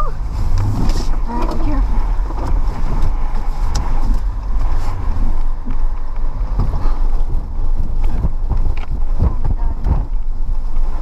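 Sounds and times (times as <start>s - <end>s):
wind gusts buffeting microphone: 0.0s - 11.0s.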